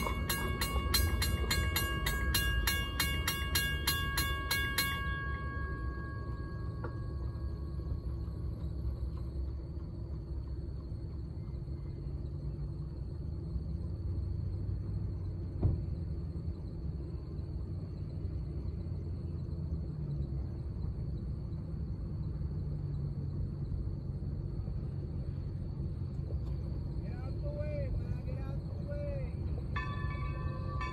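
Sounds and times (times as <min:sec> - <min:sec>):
train rolling by: 0:00.0 - 0:30.9.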